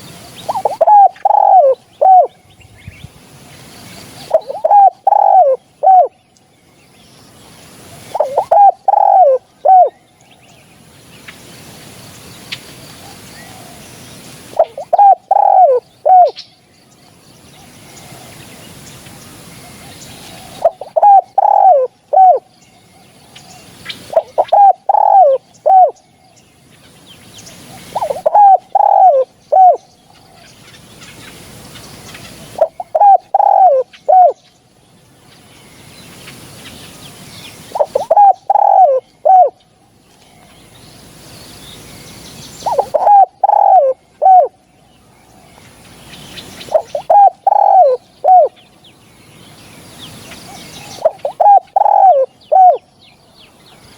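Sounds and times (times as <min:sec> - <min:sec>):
dove cooing: 0:00.0 - 0:02.4, 0:04.2 - 0:06.2, 0:07.9 - 0:10.0, 0:14.5 - 0:16.4, 0:19.6 - 0:22.5, 0:23.4 - 0:26.0, 0:27.7 - 0:30.5, 0:32.2 - 0:34.4, 0:37.7 - 0:39.6, 0:42.6 - 0:44.6, 0:46.6 - 0:48.6, 0:50.5 - 0:52.8.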